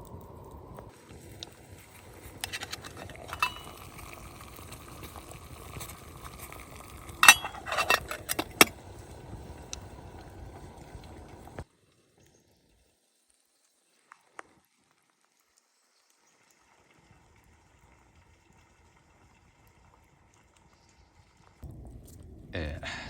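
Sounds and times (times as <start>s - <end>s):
light clinks and knocks: 2.5s - 4.2s, 7.2s - 8.7s.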